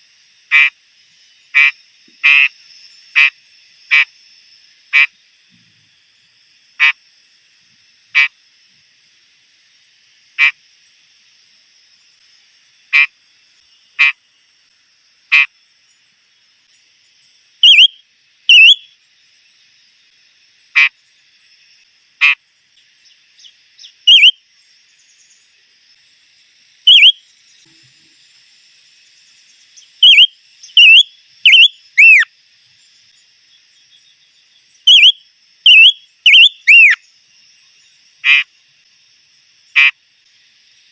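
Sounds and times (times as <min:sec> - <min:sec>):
bird chirping: 0:16.7 - 0:19.6, 0:22.2 - 0:25.6, 0:26.8 - 0:27.8, 0:29.0 - 0:38.4
bird whistling downward notes: 0:17.6 - 0:18.9, 0:23.8 - 0:24.4, 0:26.8 - 0:27.2, 0:29.7 - 0:32.3, 0:34.9 - 0:37.0.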